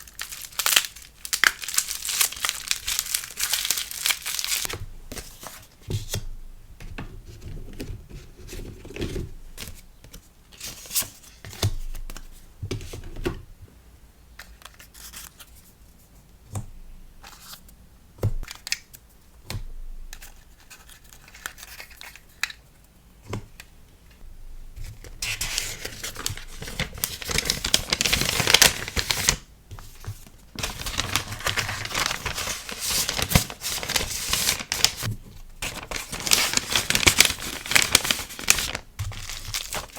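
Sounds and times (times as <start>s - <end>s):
packing materials crinkling and tearing: 0.0s - 5.6s, 25.1s - 39.9s
packing materials rustling: 0.0s - 5.7s, 24.8s - 39.9s.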